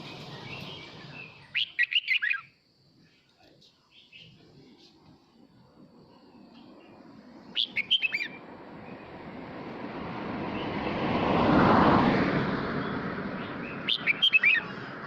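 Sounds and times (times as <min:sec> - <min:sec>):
broad rushing noise: 0:00.0 - 0:01.8, 0:04.4 - 0:15.0
bird singing warbled whistled notes: 0:00.0 - 0:02.6, 0:06.2 - 0:09.1, 0:12.8 - 0:14.7.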